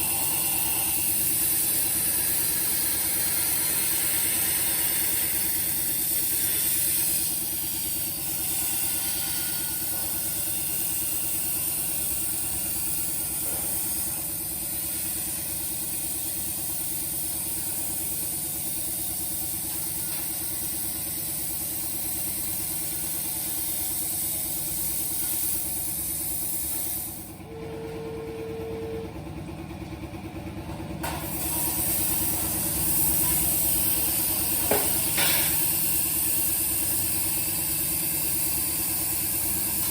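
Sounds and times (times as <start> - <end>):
plasma cutter arc hissing: 0.0 - 27.4, 31.0 - 39.9
brief steady tone: 27.5 - 29.2.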